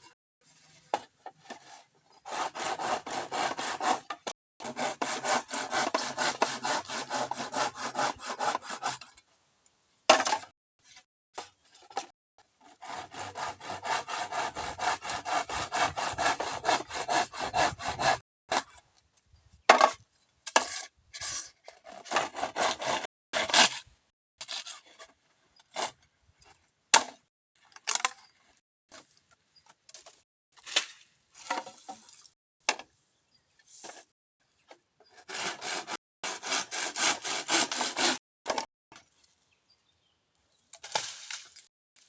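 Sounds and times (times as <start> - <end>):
hand saw cutting bamboo: 1.6 - 9.1, 12.6 - 18.8, 20.6 - 23.8, 35.1 - 38.7.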